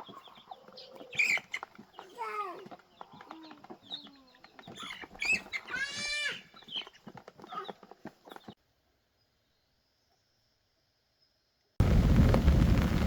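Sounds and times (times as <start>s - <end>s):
animal calls and clicks: 0.0s - 8.6s.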